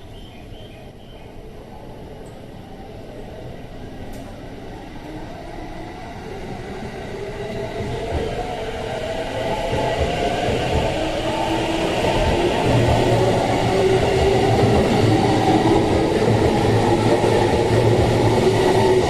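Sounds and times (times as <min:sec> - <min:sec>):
electric train running: 0:06.3 - 0:19.0.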